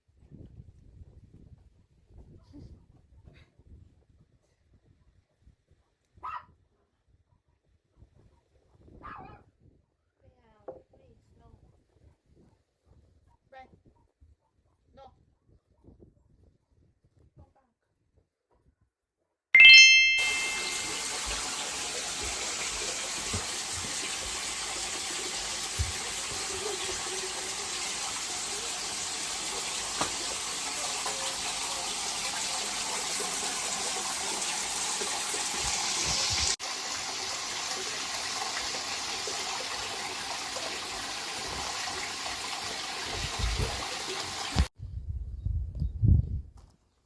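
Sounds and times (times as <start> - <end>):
running water rushing: 19.9 - 44.7.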